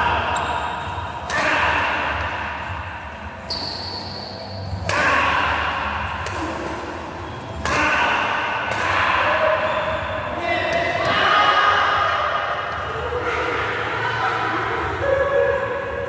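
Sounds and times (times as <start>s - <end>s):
noisy hall ambience: 0.0s - 16.0s.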